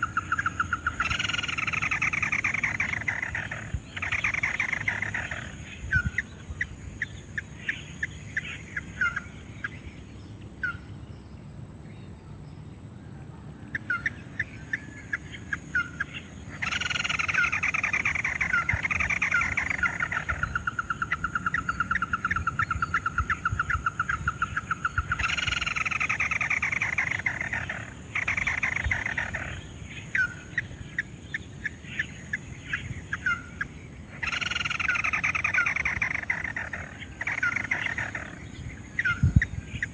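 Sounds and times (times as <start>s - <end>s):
crake calling: 0.0s - 11.0s, 13.6s - 39.9s
fast even bird trill: 34.2s - 39.9s.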